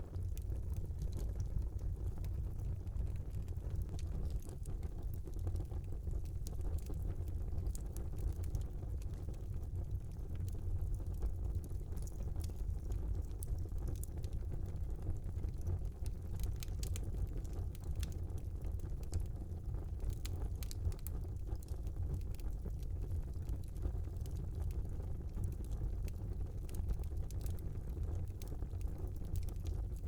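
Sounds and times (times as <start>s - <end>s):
fire crackling and popping: 0.0s - 30.0s
low rumble of flames: 0.0s - 30.0s.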